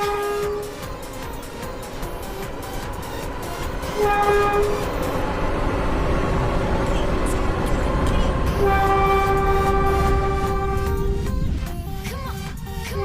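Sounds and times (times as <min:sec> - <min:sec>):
train horn: 0:00.0 - 0:00.9, 0:03.9 - 0:05.2, 0:08.5 - 0:11.3
train rumble: 0:00.0 - 0:13.0.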